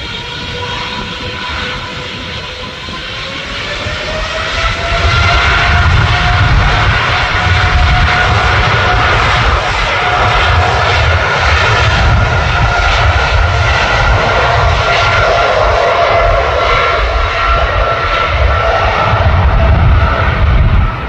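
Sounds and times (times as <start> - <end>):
jet airliner engines running: 0.0 - 21.0.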